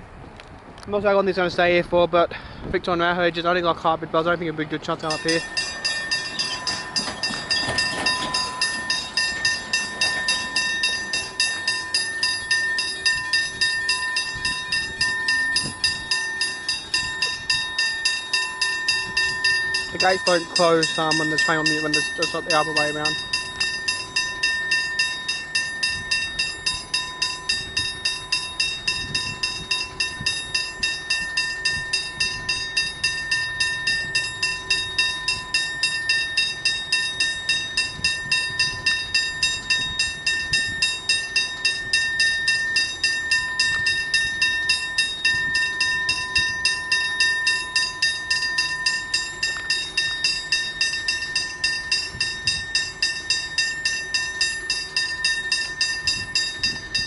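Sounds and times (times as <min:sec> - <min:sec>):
level crossing bells ringing: 0:03.0 - 0:57.0.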